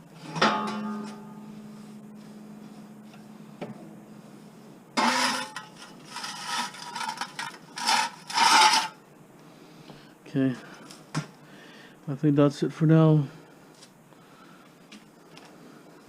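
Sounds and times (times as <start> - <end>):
ringing clang: 0.3 - 1.7
broom sweeping debris: 4.3 - 9.0.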